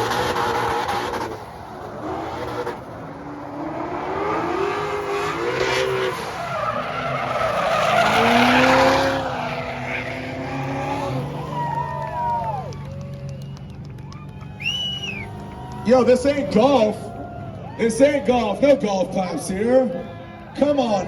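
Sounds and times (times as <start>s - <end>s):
car engine revving: 0.0s - 13.7s
tyres screeching: 4.8s - 11.9s.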